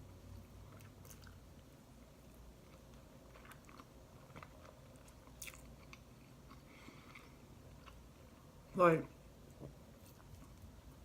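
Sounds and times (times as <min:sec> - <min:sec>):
person chewing: 0:00.6 - 0:08.5.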